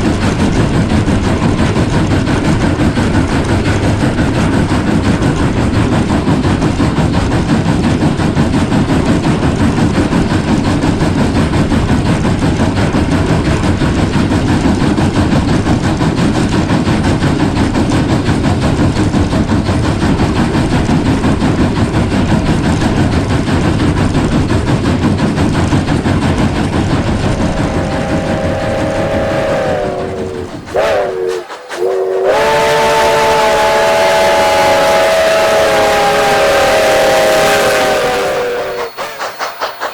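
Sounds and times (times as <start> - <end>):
steam train rumbling: 0.0 - 39.9
wheels clattering on rail: 0.0 - 39.9
steam whistle blowing: 26.8 - 39.9.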